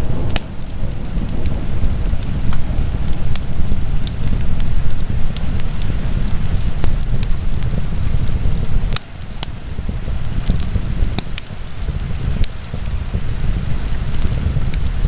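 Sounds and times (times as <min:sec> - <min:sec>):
fire popping: 0:00.0 - 0:15.0
steady low rumble: 0:00.0 - 0:15.0
wood fire crackling: 0:00.0 - 0:15.0.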